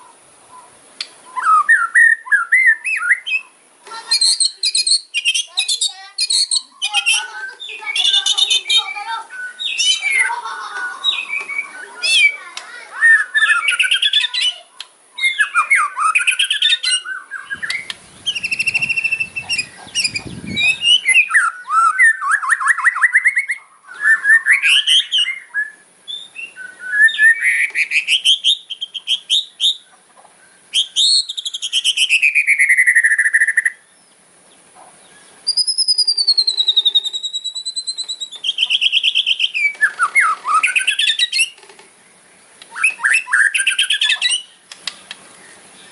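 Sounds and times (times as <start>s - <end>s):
long wavering bird whistle: 1.3s - 3.6s, 4.2s - 10.2s, 13.0s - 14.4s, 15.2s - 29.8s, 30.7s - 33.8s, 35.4s - 41.5s, 42.7s - 44.5s
bird rattling clicking trills: 35.5s - 41.9s, 42.6s - 45.3s.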